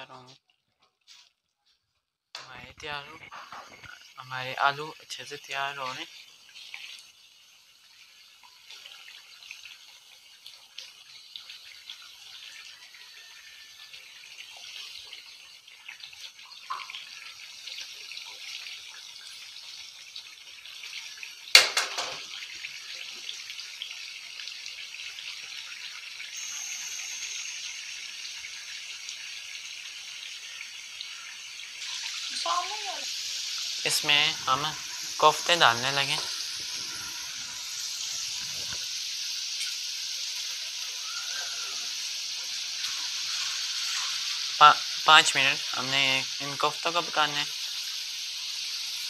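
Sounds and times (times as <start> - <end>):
oil sizzling in a wok: 0.0 - 49.0
sharp knock: 21.6 - 22.2.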